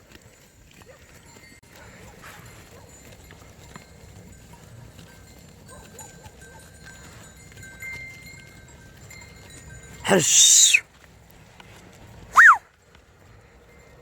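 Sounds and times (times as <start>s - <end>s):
faint sheep sounds: 10.0s - 11.0s.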